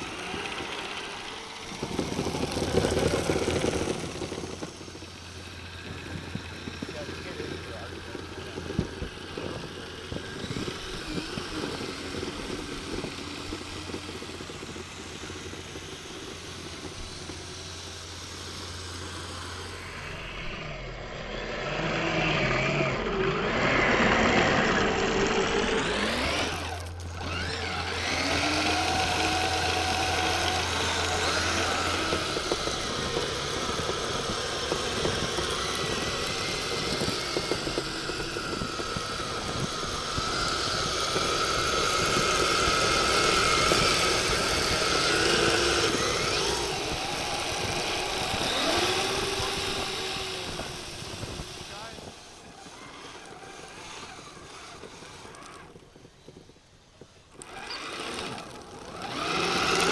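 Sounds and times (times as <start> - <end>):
vehicle motor running: 0.0 - 59.9.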